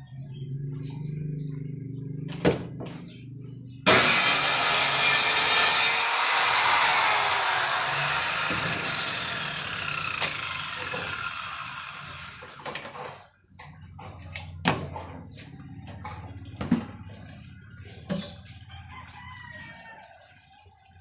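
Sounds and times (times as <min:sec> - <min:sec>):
circular saw cutting wood: 0:03.9 - 0:12.7.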